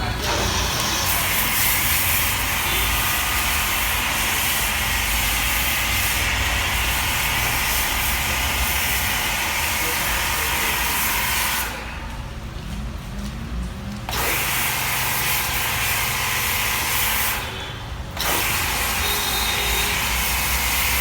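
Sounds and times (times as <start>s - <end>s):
pressure washer spraying hiss: 0.2s - 11.8s.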